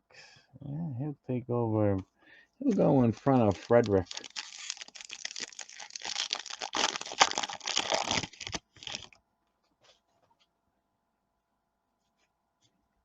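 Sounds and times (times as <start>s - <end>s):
wrapper crinkling and tearing: 2.7s - 9.2s.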